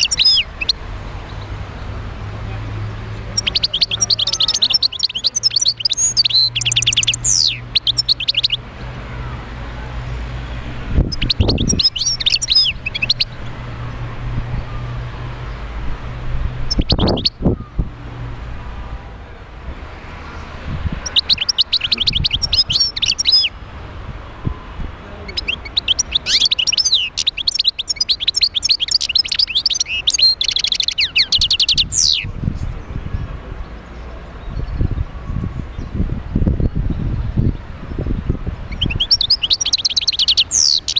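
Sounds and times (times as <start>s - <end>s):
bird twittering: 0.0s - 1.4s, 3.3s - 8.6s, 11.1s - 13.4s, 16.7s - 17.4s, 21.0s - 23.6s, 25.2s - 32.3s, 38.7s - 40.9s.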